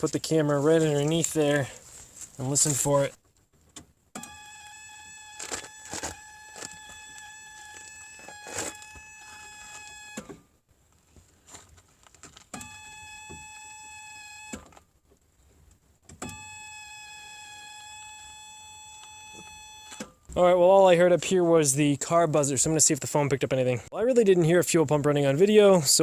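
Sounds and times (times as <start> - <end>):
dashboard warning buzzer: 4.2 - 10.3.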